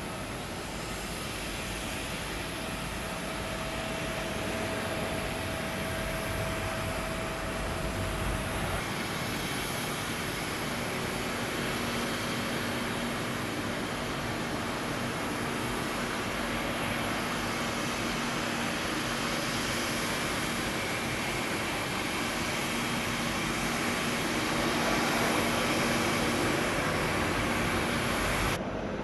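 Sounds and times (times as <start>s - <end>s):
faint thin whine: 0.0s - 29.0s
jet engines rushing: 0.0s - 29.0s.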